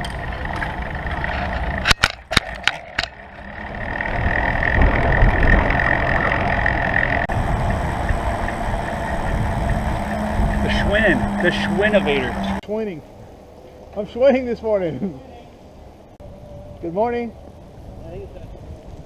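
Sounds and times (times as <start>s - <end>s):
road noise: 0.0s - 19.0s
wind on microphone: 3.0s - 12.6s, 15.7s - 19.0s.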